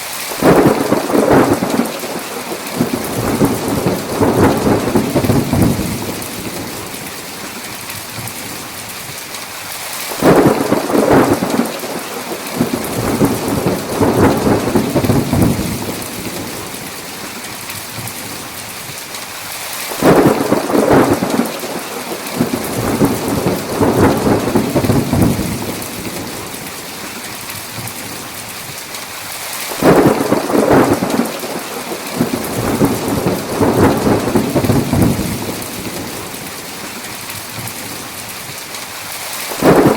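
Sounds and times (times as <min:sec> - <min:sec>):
heavy rain: 0:00.0 - 0:39.9
rolling thunder: 0:00.4 - 0:07.1, 0:10.2 - 0:17.0, 0:20.0 - 0:26.7, 0:29.8 - 0:36.8, 0:39.5 - 0:39.9.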